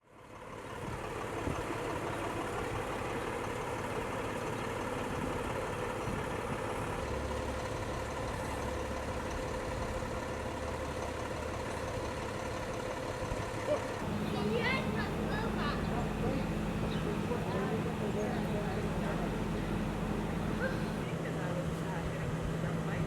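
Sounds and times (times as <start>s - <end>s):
heavy truck engine idling: 0.2s - 22.9s
steady droning tone: 14.0s - 21.1s.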